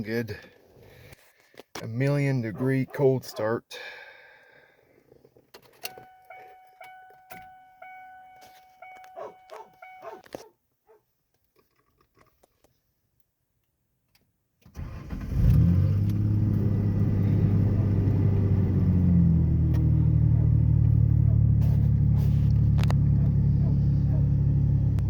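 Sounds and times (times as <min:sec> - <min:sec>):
truck engine starting and idling: 0:14.6 - 0:25.0.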